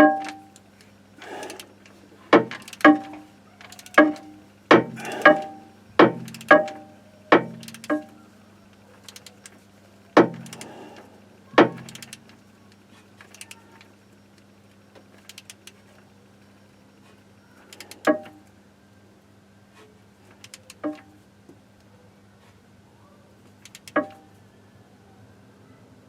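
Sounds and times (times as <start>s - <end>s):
steady low hum: 0.0s - 20.2s
metallic knocks of tools: 2.4s - 8.2s, 10.2s - 10.8s, 23.7s - 24.2s.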